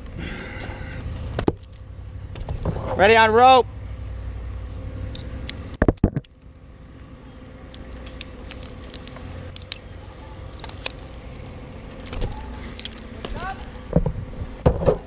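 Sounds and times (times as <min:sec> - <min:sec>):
low steady rumble: 0:00.0 - 0:15.0
metallic clinks of climbing gear: 0:01.6 - 0:02.0, 0:07.7 - 0:13.9.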